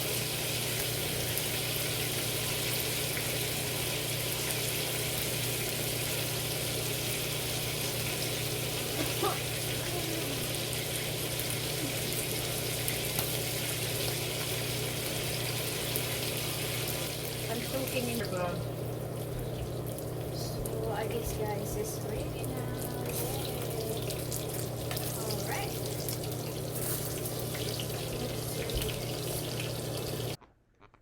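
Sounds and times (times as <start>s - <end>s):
fish sizzling in oil: 0.0s - 30.4s.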